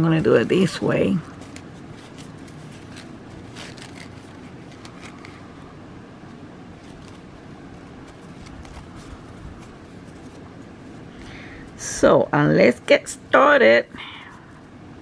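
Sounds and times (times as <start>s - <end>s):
hands rustling fabric and thread: 0.0s - 11.9s.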